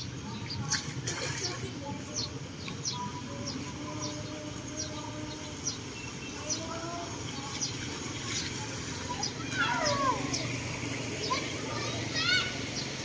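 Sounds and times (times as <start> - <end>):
bird chirping: 1.4 - 7.8.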